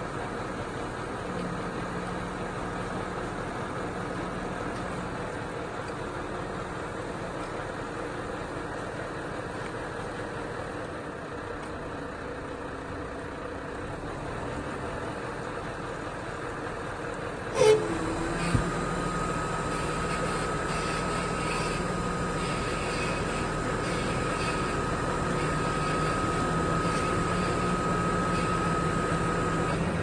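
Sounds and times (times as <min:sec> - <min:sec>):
machinery noise: 0:17.4 - 0:30.0
machine whine: 0:17.5 - 0:30.0.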